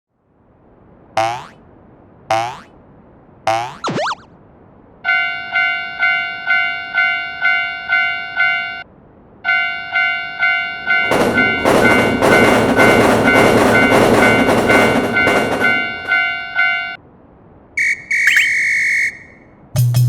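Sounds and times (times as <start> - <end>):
passing train rumble: 0.2 - 3.5, 4.3 - 18.0
railroad crossing bell ringing: 5.1 - 8.9, 9.5 - 17.0
train wheel clatter: 10.9 - 16.3.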